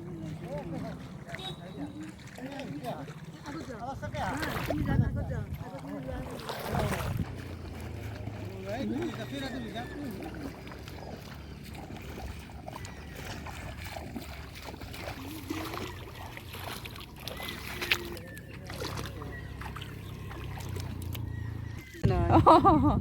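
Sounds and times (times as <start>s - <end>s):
distant voices: 0.0s - 22.8s.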